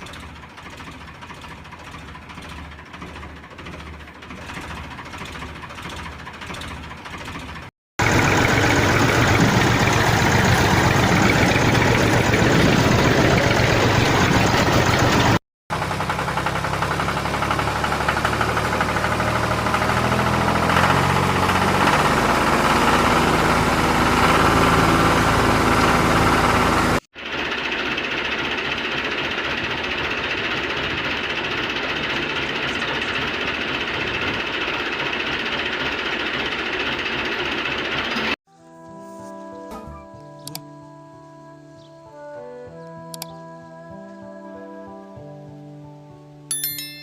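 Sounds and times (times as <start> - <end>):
motor running: 8.0 - 38.4.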